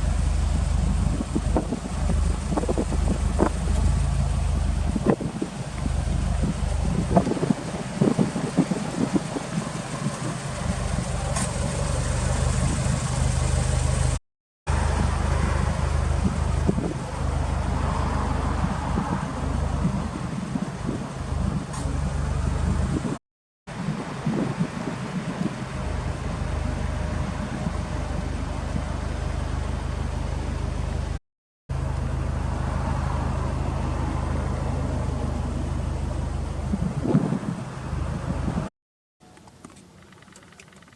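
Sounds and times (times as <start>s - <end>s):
car engine idling: 0.0s - 18.4s, 23.9s - 38.7s.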